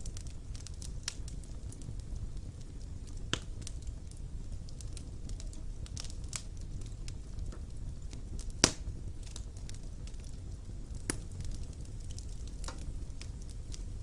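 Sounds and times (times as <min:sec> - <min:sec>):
fire crackles: 0:00.0 - 0:14.0
wood fire rumbling: 0:00.0 - 0:14.0
sharp pop of fire: 0:03.2 - 0:03.7, 0:08.4 - 0:09.4, 0:11.0 - 0:13.9.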